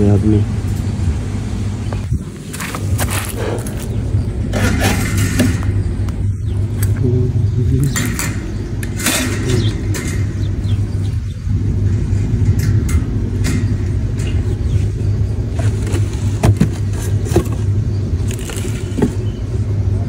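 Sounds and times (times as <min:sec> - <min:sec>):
steady low rumble: 0:00.0 - 0:20.0
wire birdcage door rattling: 0:03.8 - 0:05.9, 0:07.9 - 0:10.8.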